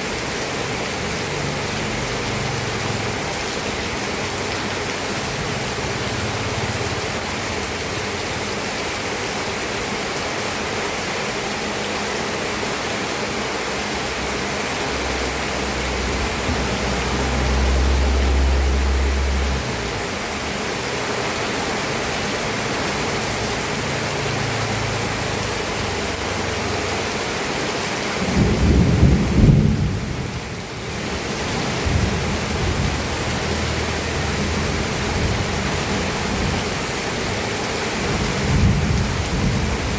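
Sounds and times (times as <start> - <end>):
steady rain: 0.0 - 39.9
thunder rumbling: 15.7 - 19.9, 28.2 - 30.6, 38.0 - 39.9.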